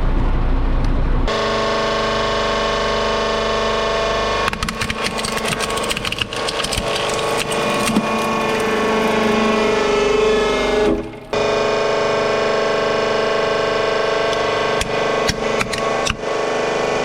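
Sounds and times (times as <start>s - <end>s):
machine hum: 4.2s - 17.0s
toy truck cracking under crushing: 4.3s - 11.4s.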